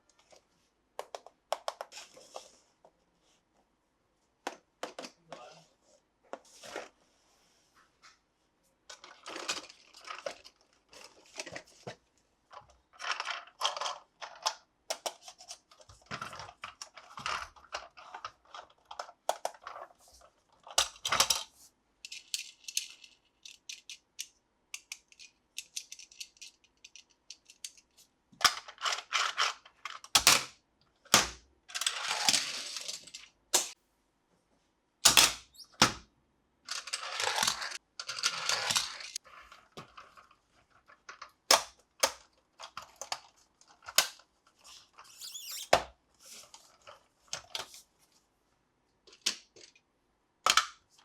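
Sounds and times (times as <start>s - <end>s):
plastic toy pieces clicking: 22.0s - 27.8s.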